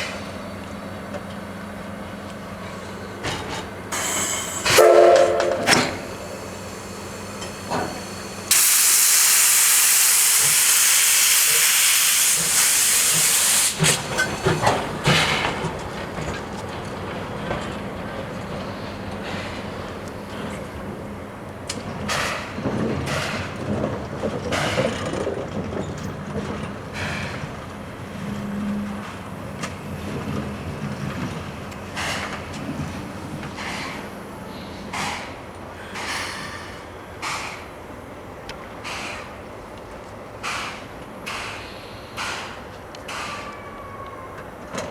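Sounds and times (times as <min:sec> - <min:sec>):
steam locomotive steam hiss: 0:02.5 - 0:15.8, 0:17.8 - 0:23.6, 0:26.9 - 0:43.6.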